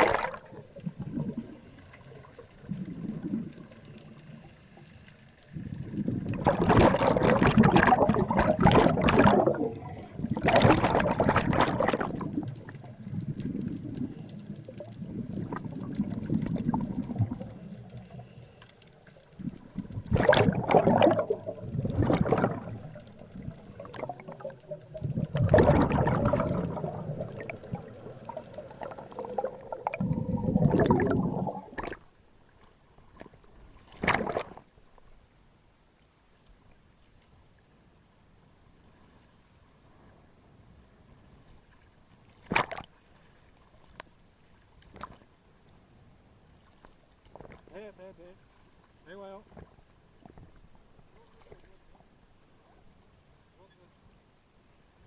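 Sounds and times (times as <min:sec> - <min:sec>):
water bubbling and gurgling: 0:00.0 - 0:32.2, 0:33.2 - 0:34.7, 0:42.4 - 0:43.0.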